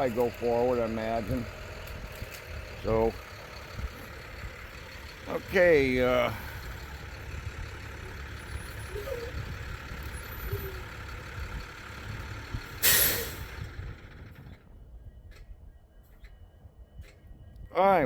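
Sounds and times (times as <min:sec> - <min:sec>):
diesel engine rumbling: 0:00.0 - 0:15.8
air brake hiss: 0:12.8 - 0:13.6.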